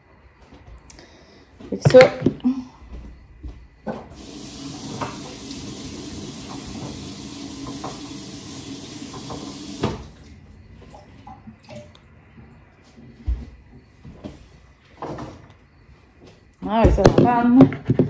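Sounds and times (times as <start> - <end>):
kitchen tap running: 4.1 - 10.4.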